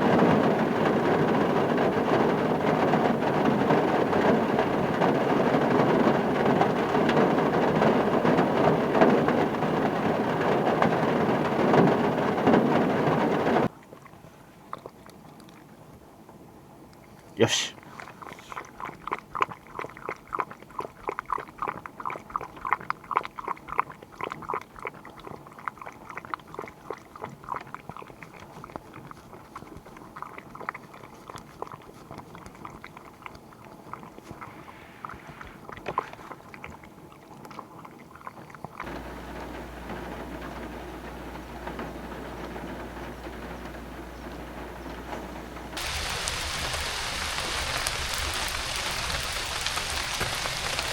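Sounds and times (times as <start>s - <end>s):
dog chewing something hard: 18.0s - 39.0s
low hum: 38.8s - 50.9s.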